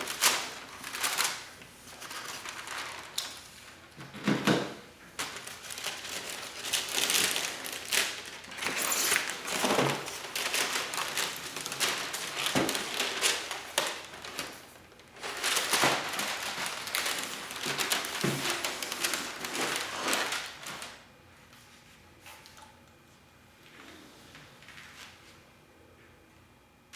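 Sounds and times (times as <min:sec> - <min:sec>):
packaging crinkling and rustling: 0:00.0 - 0:21.1.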